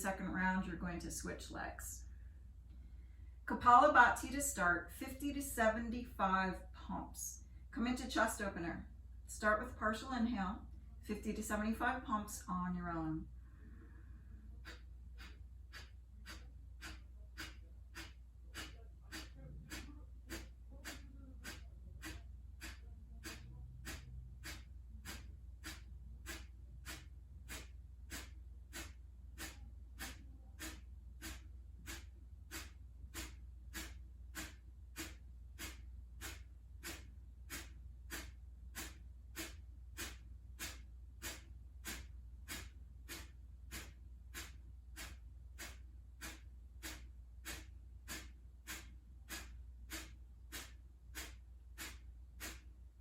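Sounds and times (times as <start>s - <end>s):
steady low hum: 0.0s - 53.0s
sharp exhales through nose: 13.5s - 52.7s.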